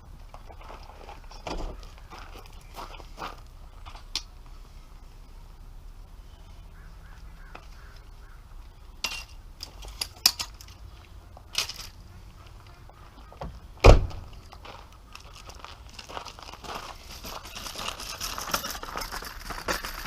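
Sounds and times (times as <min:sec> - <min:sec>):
heavy deep thump: 0:13.4 - 0:14.3.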